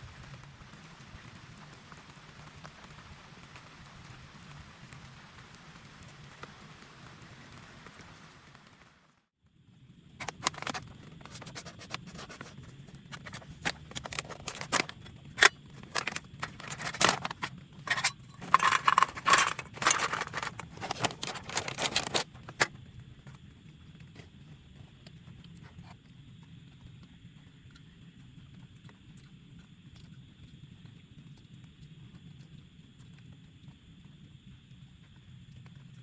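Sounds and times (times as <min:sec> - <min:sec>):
handling clicks and scrapes: 0:10.2 - 0:22.7.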